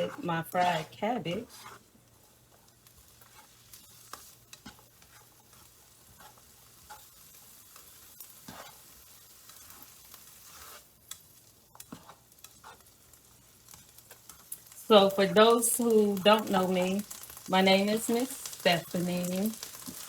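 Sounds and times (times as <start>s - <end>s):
utensil clicking while stirring: 0.0s - 14.8s
peppers sizzling in a pan: 0.0s - 20.0s.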